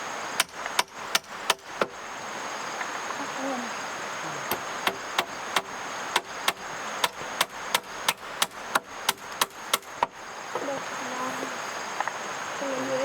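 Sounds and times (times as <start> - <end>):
chopping strikes with ring: 0.4 - 2.0, 4.5 - 10.1.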